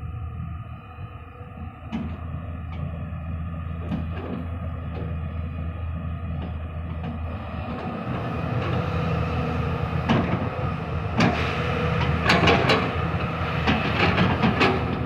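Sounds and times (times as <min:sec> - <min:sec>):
machinery drone: 0:00.0 - 0:15.0
construction machinery clanking: 0:06.3 - 0:15.0.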